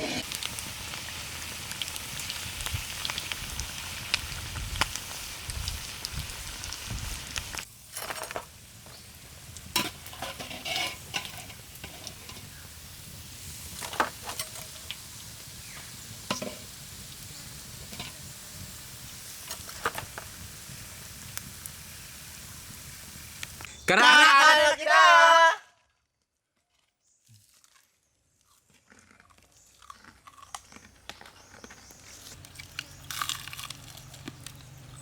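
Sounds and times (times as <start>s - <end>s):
frying in hot oil sizzling: 0.0s - 23.8s, 32.3s - 35.0s.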